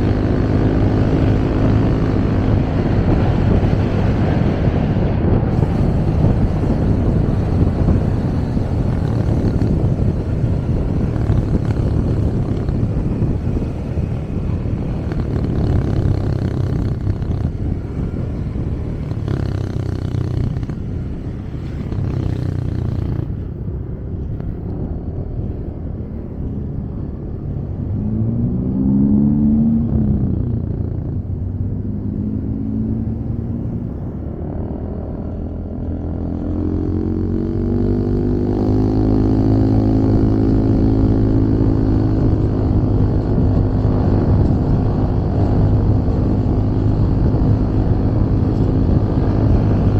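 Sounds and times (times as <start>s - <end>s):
engine revving: 0.0s - 49.9s
motorcycle engine running: 0.0s - 49.9s
wind rush: 0.0s - 49.9s.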